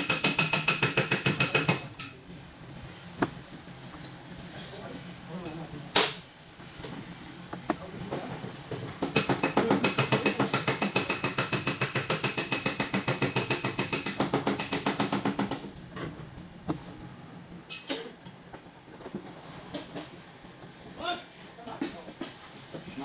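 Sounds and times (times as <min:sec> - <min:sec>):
rapid tapping on sheet metal: 0:09.0 - 0:15.6.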